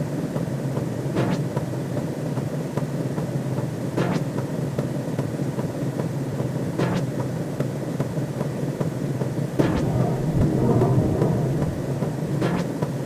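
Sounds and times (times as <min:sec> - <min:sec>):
brief swoosh: 0:09.6 - 0:12.9
synthesized low rumble: 0:09.6 - 0:13.0.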